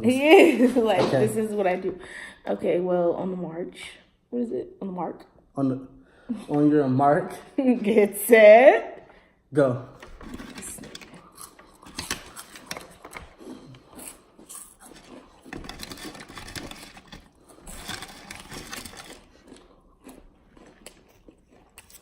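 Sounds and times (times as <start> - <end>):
people crunching and chewing snacks: 9.9 - 22.0.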